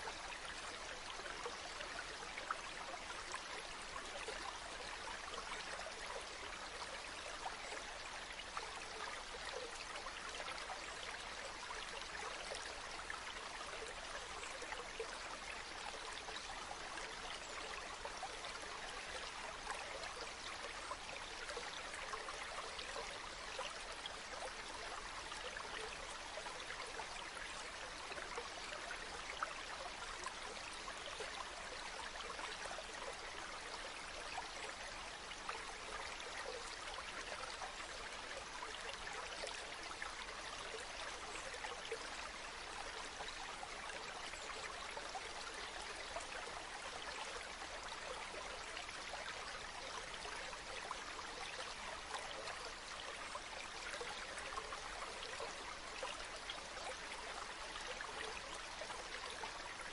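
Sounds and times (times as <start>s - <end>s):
stream trickling and bubbling: 0.0s - 59.9s.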